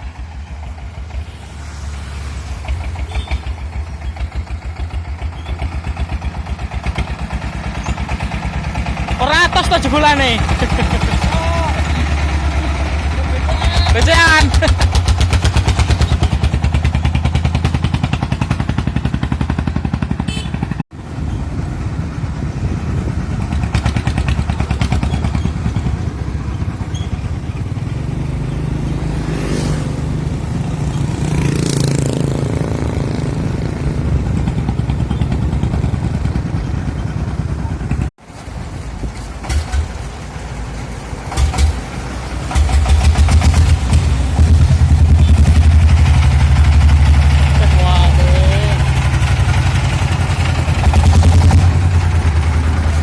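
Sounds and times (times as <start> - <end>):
small diesel engine knocking: 3.1 - 20.8, 23.4 - 27.6, 41.3 - 44.1.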